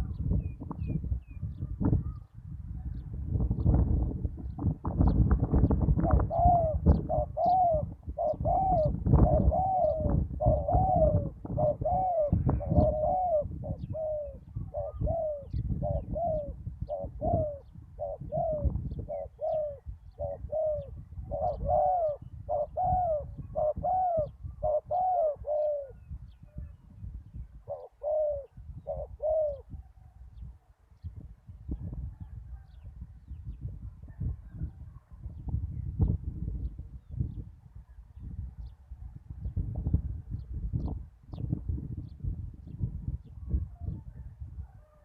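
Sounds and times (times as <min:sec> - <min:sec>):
dove cooing: 0:04.5 - 0:26.6, 0:27.6 - 0:29.8.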